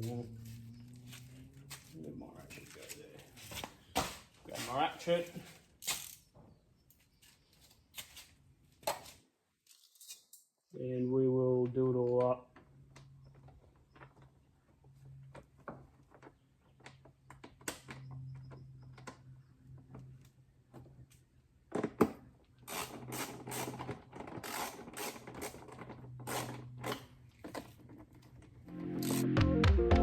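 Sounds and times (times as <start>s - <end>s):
hand ratchet clicking: 22.7s - 27.0s.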